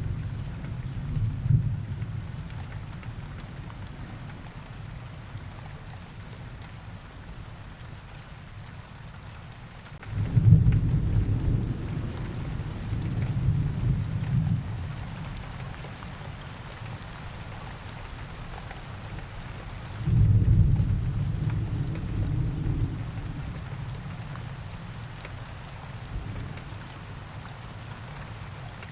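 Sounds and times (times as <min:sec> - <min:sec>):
steady rain: 0:00.0 - 0:28.9
thunder rumbling: 0:10.0 - 0:15.4, 0:20.0 - 0:25.1, 0:26.0 - 0:27.1.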